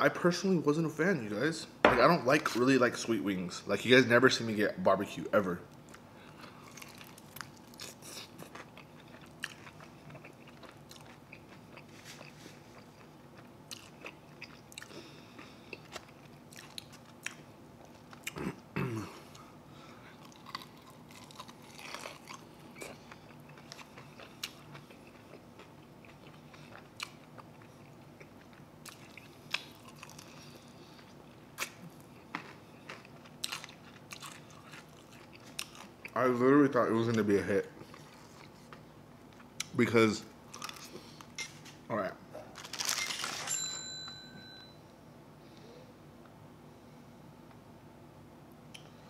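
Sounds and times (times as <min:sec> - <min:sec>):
chewing chicken wings: 0:05.9 - 0:18.4, 0:20.1 - 0:36.2.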